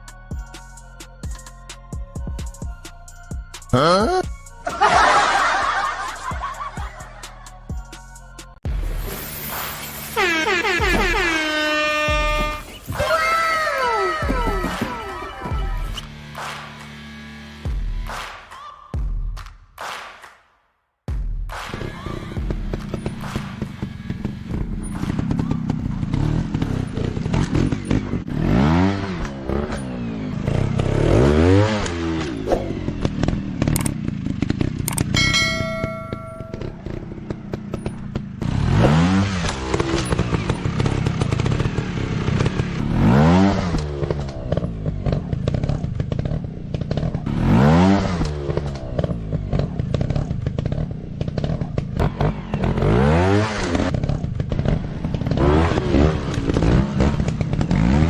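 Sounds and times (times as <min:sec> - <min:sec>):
dirt bike engine revving: 0:09.2 - 0:17.8, 0:21.7 - 0:58.0
short beeping tone: 0:35.2 - 0:37.0.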